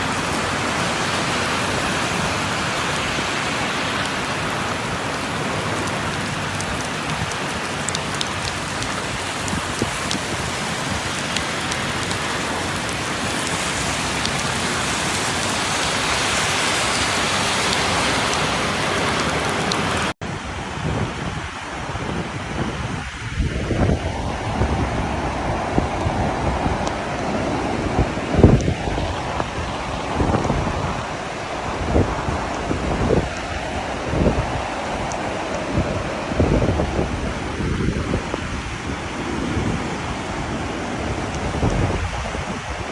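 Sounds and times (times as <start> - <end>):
heavy rain pouring: 0.0 - 42.9
raindrops ticking: 3.9 - 20.1, 23.8 - 42.9
gusty noise: 20.2 - 42.9.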